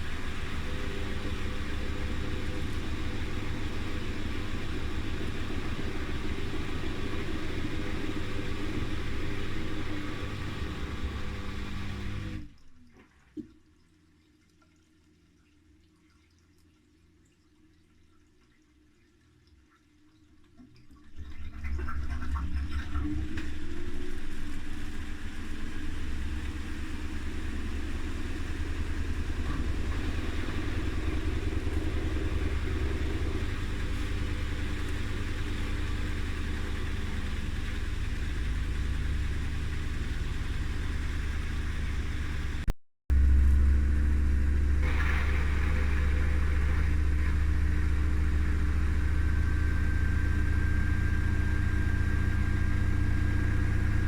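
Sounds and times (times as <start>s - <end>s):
faint motor whine: 0.0s - 12.6s, 23.0s - 54.0s
washing machine spinning hum: 0.0s - 13.2s, 19.0s - 54.0s.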